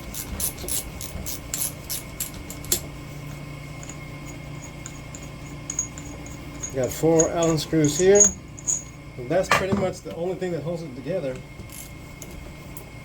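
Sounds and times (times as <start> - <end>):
low steady hum: 0.0 - 13.0
hand tool scraping metal: 3.8 - 9.6.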